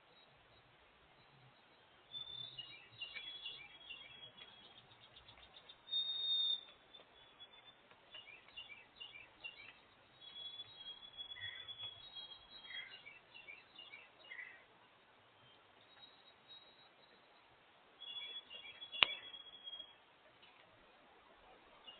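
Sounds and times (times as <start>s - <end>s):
small songbirds chirping: 0.0s - 21.9s
bird trill: 1.2s - 14.7s, 15.4s - 20.0s
high bird whistle: 2.1s - 4.8s, 5.8s - 7.8s, 9.5s - 13.0s, 18.0s - 20.0s.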